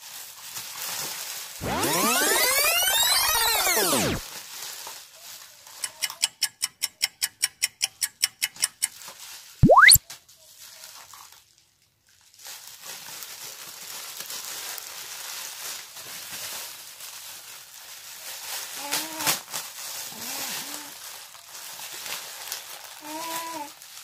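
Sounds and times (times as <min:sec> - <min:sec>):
plastic bag rustling: 0:00.0 - 0:01.6, 0:04.2 - 0:05.4, 0:12.2 - 0:24.0
fast cartoon clicks: 0:01.6 - 0:04.2, 0:09.6 - 0:10.0
rising whistle glide: 0:01.6 - 0:04.2, 0:09.6 - 0:10.0.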